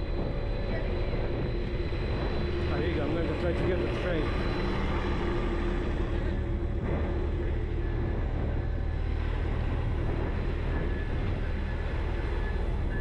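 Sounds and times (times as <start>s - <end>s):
faint steady whine: 0.0s - 13.0s
train rumbling: 0.0s - 13.0s.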